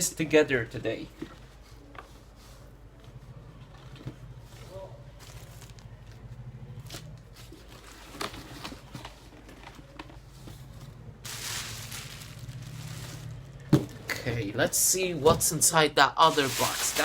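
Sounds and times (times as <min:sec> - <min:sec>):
low steady hum: 0:00.0 - 0:17.0
packaging rustling: 0:05.1 - 0:14.1, 0:16.2 - 0:17.0.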